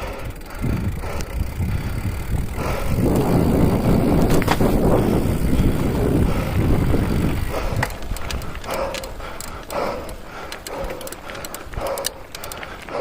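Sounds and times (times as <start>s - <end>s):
low rumble of vehicle moving: 0.0s - 13.0s
sharp clicks: 7.6s - 13.0s.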